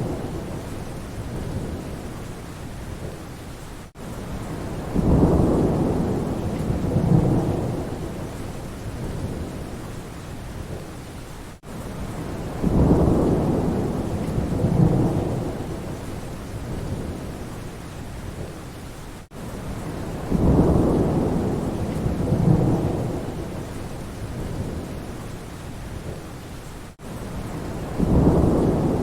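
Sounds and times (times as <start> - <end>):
low rolling thunder: 0.0 - 2.1, 4.3 - 9.9, 12.0 - 17.5, 19.7 - 25.2, 27.0 - 29.0
steady rain: 0.0 - 29.0.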